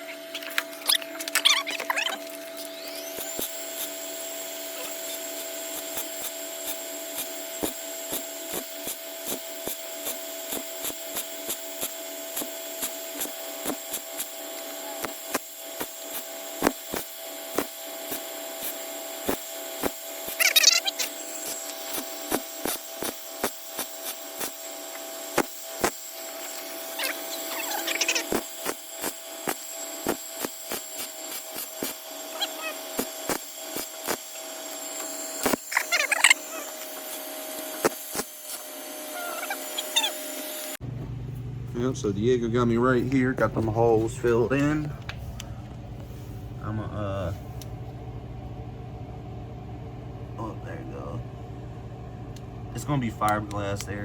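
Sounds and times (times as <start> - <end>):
grinder squeals: 0.0 - 40.8
power grinder whining: 0.0 - 40.8.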